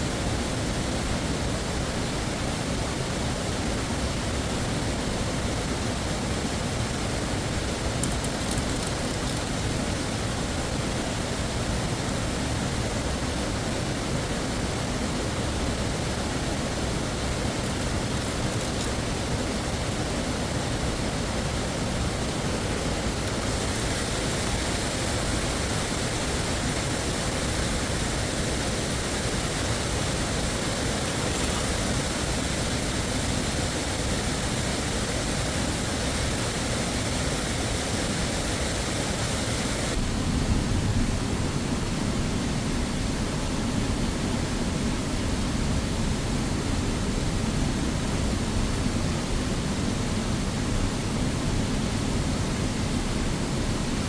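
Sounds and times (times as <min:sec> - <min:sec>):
waterfall rushing: 0:05.6 - 0:40.0.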